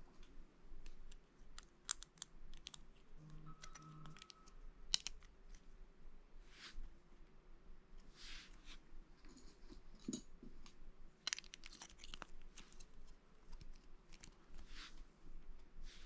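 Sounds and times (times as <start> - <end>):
plastic bricks clicking and clattering: 4.0 - 5.3, 11.2 - 12.8
soft rustles: 11.6 - 16.0.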